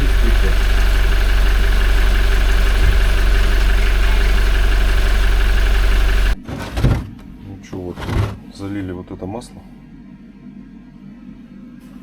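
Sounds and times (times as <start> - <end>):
diesel engine idling: 0.0 - 6.4
low thump: 2.6 - 3.4.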